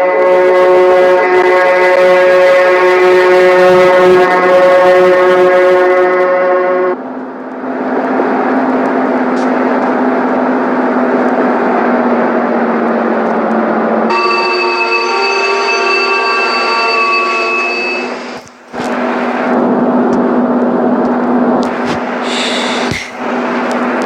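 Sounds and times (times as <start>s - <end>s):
locomotive horn blast: 0.0s - 7.1s, 14.1s - 19.7s
train coach running noise: 0.0s - 24.0s.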